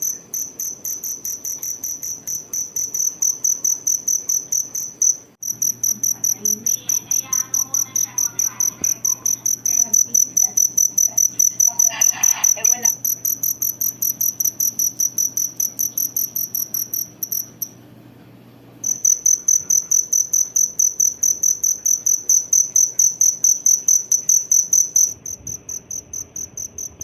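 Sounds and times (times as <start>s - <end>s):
cricket chirping: 0.0s - 17.8s, 18.8s - 27.0s.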